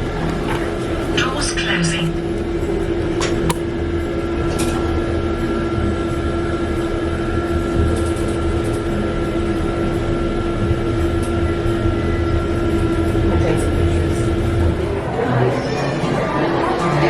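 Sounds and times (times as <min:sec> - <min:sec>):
elevator mechanical hum: 0:00.0 - 0:17.0.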